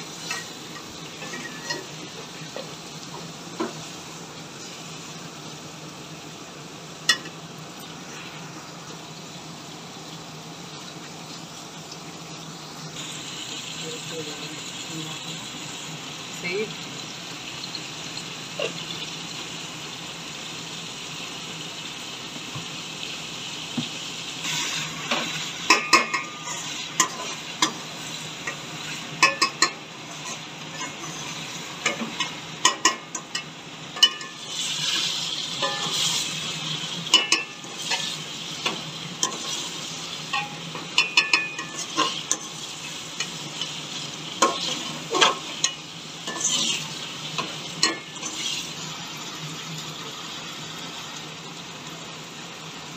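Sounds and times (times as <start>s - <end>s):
food sizzling in oil: 0.0s - 52.9s
steel spoon scraping a pan: 0.2s - 2.0s, 24.4s - 27.8s, 28.4s - 43.8s, 44.4s - 48.9s.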